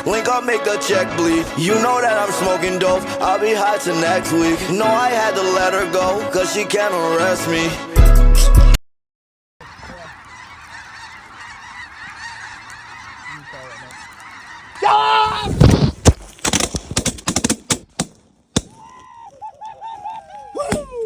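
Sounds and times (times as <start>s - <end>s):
geese honking: 0.1s - 6.0s, 9.6s - 15.5s.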